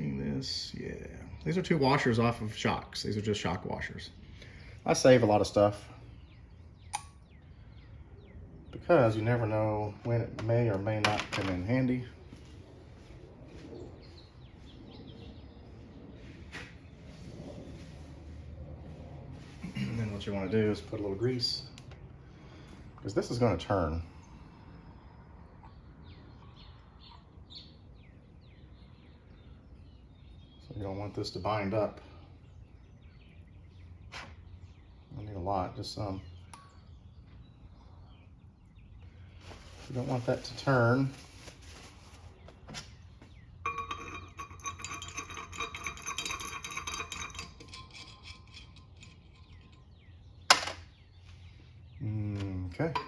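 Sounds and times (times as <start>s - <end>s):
small metal tools clinking: 43.6s - 50.8s.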